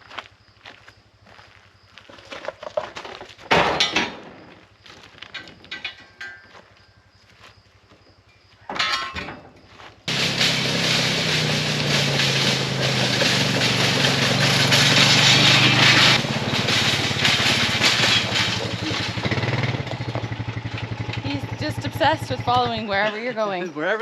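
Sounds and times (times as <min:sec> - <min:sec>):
quad engine running: 0:10.1 - 0:23.4.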